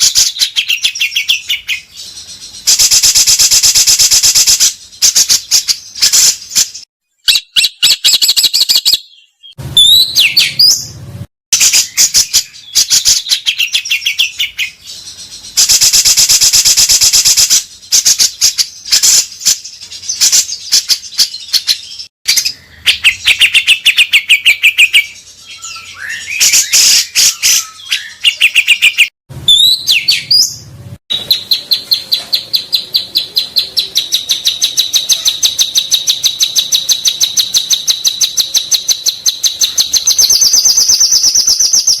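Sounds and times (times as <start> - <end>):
songbird chattering trills: 11.6 - 42.0.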